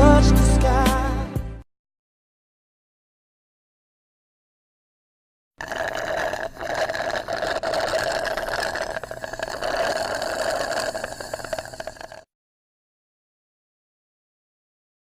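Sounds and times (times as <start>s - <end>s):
small motor rattling: 5.6s - 12.2s.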